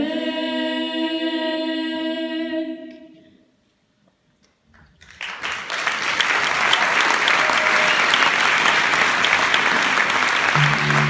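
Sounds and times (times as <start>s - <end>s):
applause: 5.0s - 11.0s.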